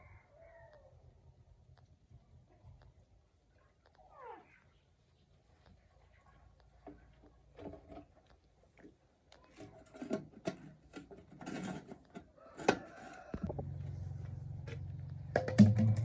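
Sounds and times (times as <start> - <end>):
knocks and clatter of handling: 6.9 - 13.5
low pulsing hum: 13.4 - 16.0.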